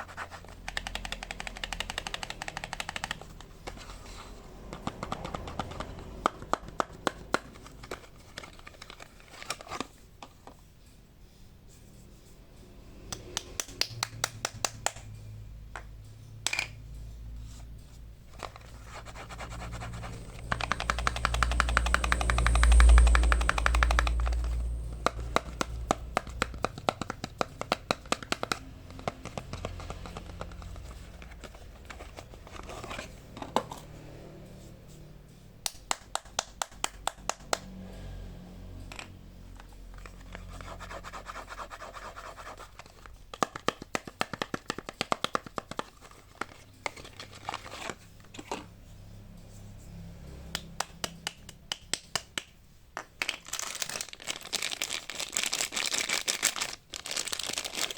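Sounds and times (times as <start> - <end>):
packaging crinkling and tearing: 53.2 - 57.9.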